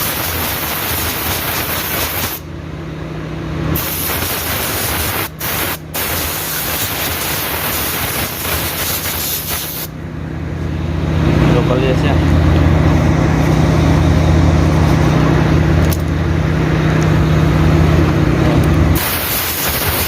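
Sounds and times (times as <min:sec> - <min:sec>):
compressed air blowgun hissing: 0:00.0 - 0:02.4, 0:03.8 - 0:09.9, 0:19.0 - 0:20.0
steady low hum: 0:00.0 - 0:20.0.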